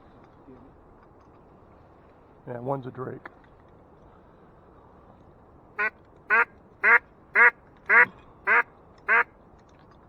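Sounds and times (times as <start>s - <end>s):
duck call quacks: 5.8s - 9.3s.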